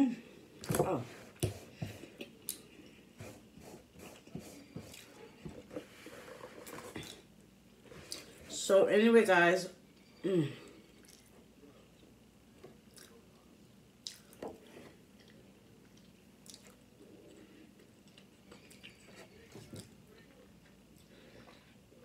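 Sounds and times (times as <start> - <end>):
chewing and lip smacking: 11.0 - 11.3, 12.9 - 14.4, 15.2 - 19.2.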